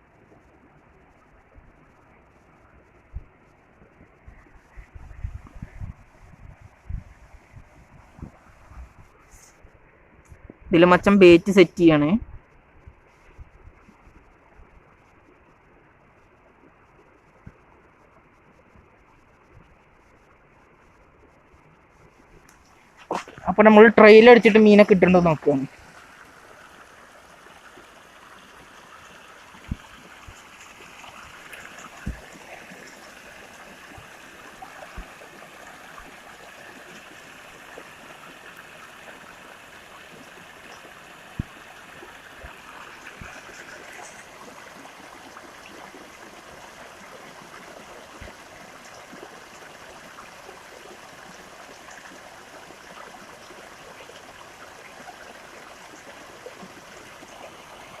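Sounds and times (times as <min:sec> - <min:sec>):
flowing water rushing: 0:22.2 - 0:58.0.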